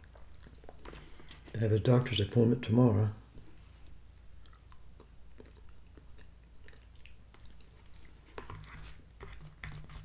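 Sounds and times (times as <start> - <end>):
person chewing: 0.0 - 1.6, 3.8 - 9.2.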